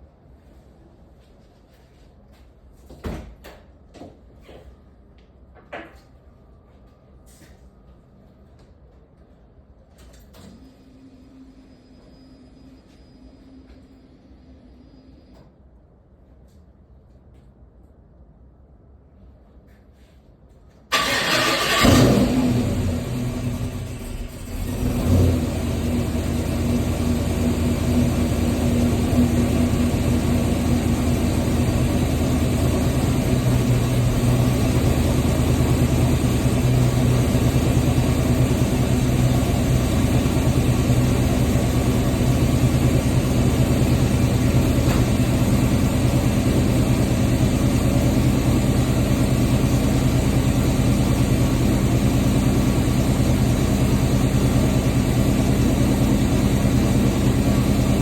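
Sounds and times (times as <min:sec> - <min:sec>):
car engine idling: 0:20.9 - 0:58.0.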